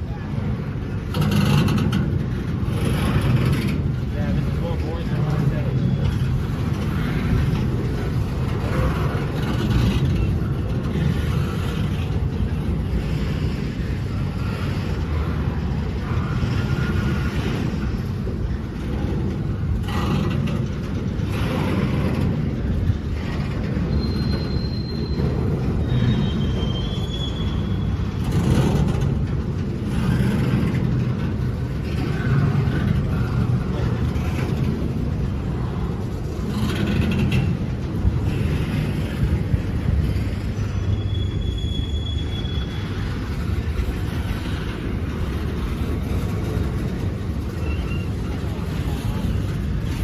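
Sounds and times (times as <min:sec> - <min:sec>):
train wheels rumbling on rails: 0:00.0 - 0:50.0
high-pitched squeals: 0:40.6 - 0:43.0.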